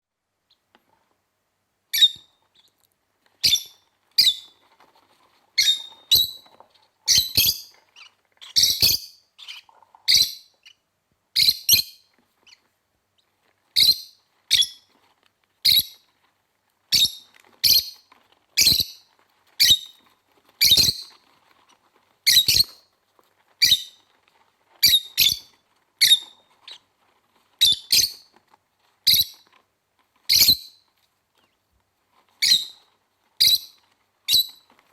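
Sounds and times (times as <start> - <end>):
lovebirds chirping: 5.6 - 10.8, 24.8 - 26.8, 32.4 - 34.7.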